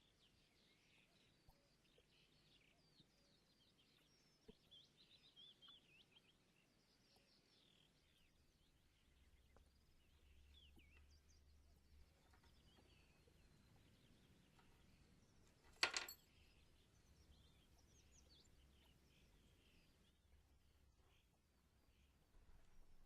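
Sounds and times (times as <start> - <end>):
faint birdsong chirps: 0.0 - 23.0
sharp ringing clink: 15.8 - 16.4.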